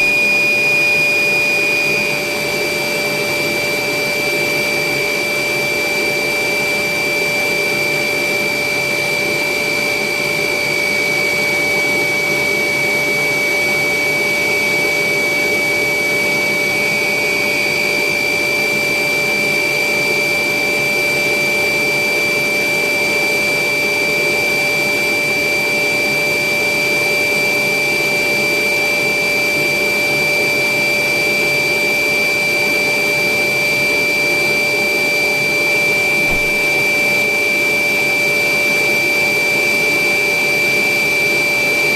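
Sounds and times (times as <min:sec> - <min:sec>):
electric air blower whining: 0:00.0 - 0:19.4, 0:32.7 - 0:39.8.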